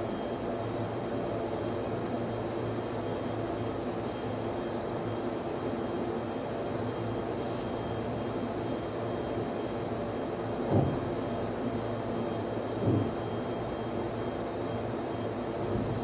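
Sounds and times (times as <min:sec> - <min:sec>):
cooling fans droning: 0:00.0 - 0:16.0.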